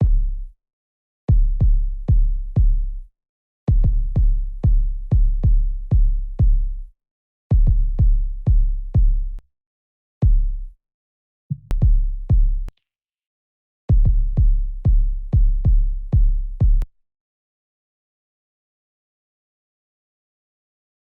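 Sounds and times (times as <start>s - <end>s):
electronic kick drum hits: 3.7s - 6.6s, 11.5s - 12.7s, 13.9s - 16.8s.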